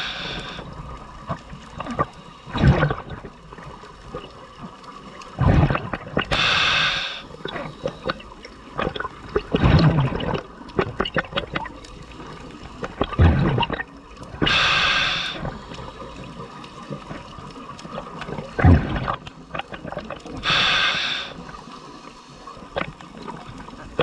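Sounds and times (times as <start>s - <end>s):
regulator inhale hissing: 0.0s - 0.8s, 6.3s - 8.1s, 14.4s - 16.6s, 20.4s - 22.6s
exhaled bubbles gurgling: 0.0s - 24.0s.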